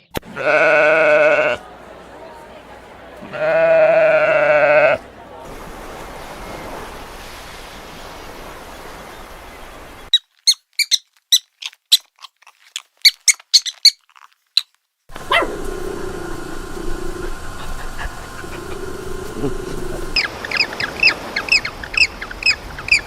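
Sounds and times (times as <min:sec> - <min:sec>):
falling animal call: 0:00.2 - 0:01.6, 0:03.2 - 0:05.1, 0:15.1 - 0:23.0
background hiss: 0:00.2 - 0:10.1, 0:15.1 - 0:23.0
small animal squeaking: 0:10.1 - 0:14.7.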